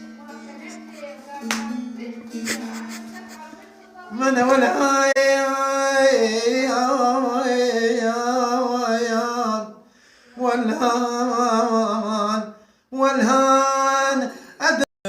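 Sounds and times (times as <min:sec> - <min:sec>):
man singing ornamented notes: 0:04.1 - 0:09.8, 0:10.4 - 0:14.9.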